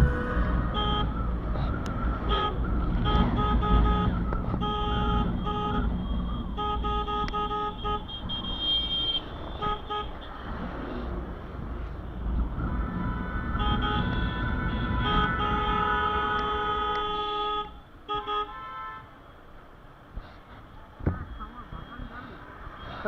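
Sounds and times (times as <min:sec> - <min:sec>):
engines and tyres rumbling: 0:00.0 - 0:23.0
vehicle horn honking: 0:13.6 - 0:19.1.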